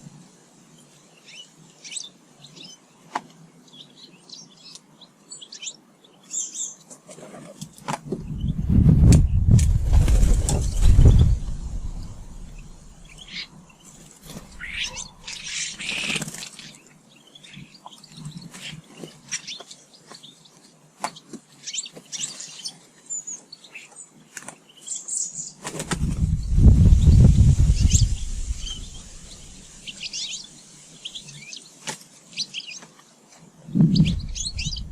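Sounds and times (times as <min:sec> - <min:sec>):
birds chirping and calling: 0:03.7 - 0:07.0, 0:07.6 - 0:32.9, 0:33.7 - 0:34.9
low rumbling: 0:08.1 - 0:13.4, 0:25.9 - 0:30.2, 0:33.7 - 0:34.9.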